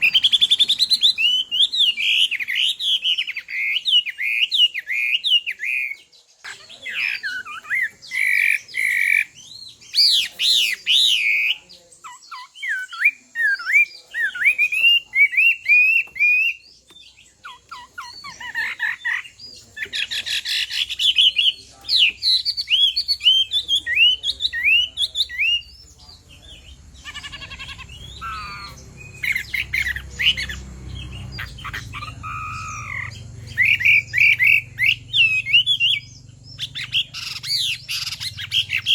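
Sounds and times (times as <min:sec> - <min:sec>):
laughingthrush song: 0:26.2 - 0:36.0.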